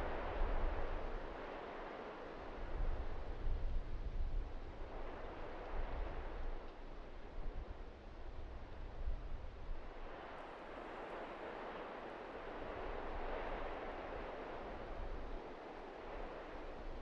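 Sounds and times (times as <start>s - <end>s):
wind rumble on microphone: 0.0s - 17.0s
blizzard wind gusting: 9.3s - 17.0s.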